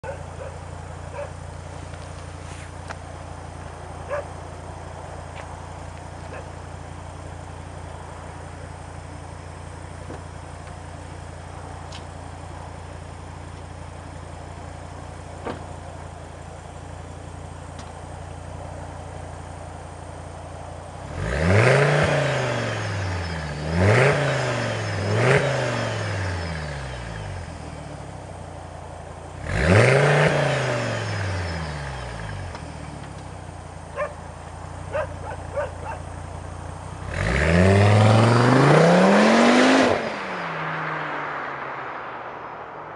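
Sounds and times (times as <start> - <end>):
car engine idling: 0.0 - 21.3, 21.9 - 38.4
car engine revving: 20.8 - 28.2, 29.1 - 42.9.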